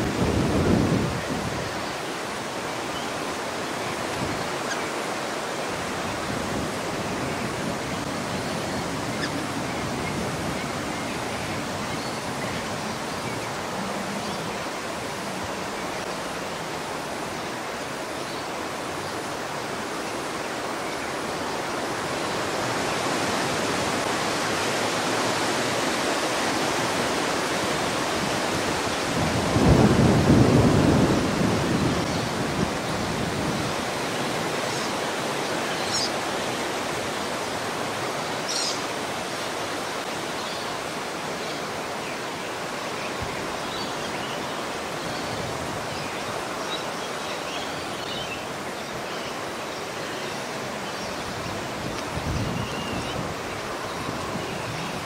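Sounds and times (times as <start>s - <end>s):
heavy rain hissing: 0.0s - 47.2s
thunder rumbling: 29.1s - 33.6s.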